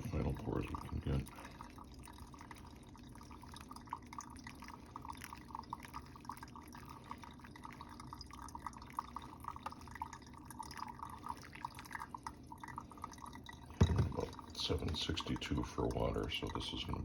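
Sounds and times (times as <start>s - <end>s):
coffee dripping into carafe: 0.0s - 17.0s.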